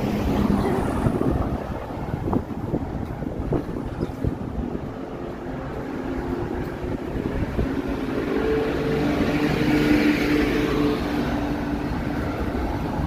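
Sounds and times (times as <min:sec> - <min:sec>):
vehicle engine passing: 0:03.5 - 0:13.0.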